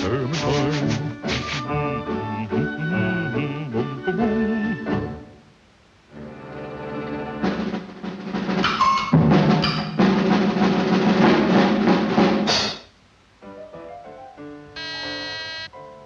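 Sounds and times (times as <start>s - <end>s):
fast snare drum roll: 0.1s - 1.7s, 7.5s - 12.9s.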